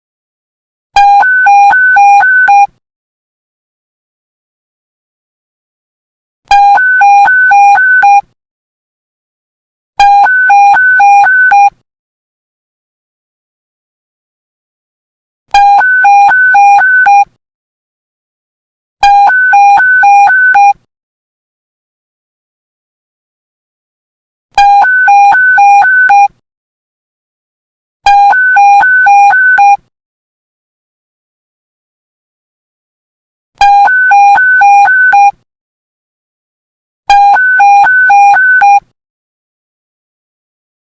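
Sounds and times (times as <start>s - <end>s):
electronic two-tone alert beep: 1.0s - 2.7s, 15.6s - 17.2s, 19.0s - 20.8s, 24.6s - 26.3s, 28.1s - 29.8s, 33.6s - 35.4s, 37.1s - 38.8s.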